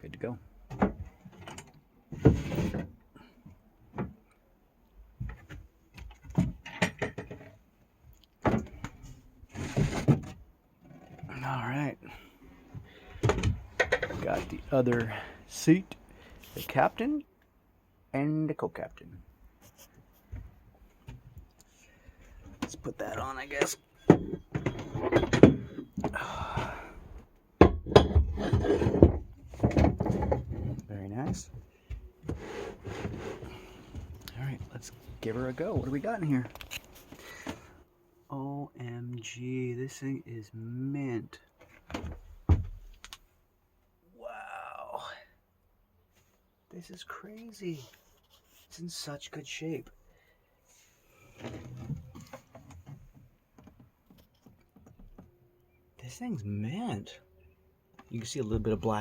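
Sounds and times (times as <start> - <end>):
scraping rub: 32.3 - 34.0.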